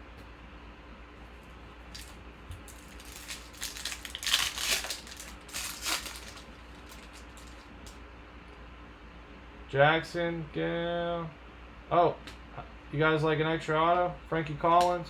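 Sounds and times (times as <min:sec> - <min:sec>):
plastic packaging crinkling: 0:01.4 - 0:08.0.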